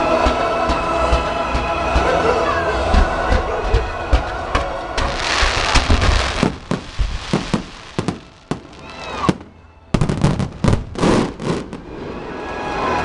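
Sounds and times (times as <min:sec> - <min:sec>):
fireworks bangs: 0:05.0 - 0:12.0.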